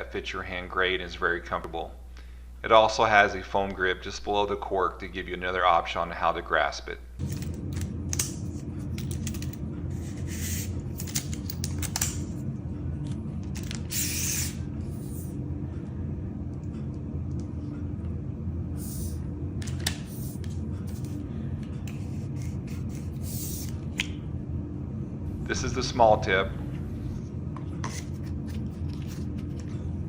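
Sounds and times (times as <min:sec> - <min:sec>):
low hum: 0:06.1 - 0:30.0.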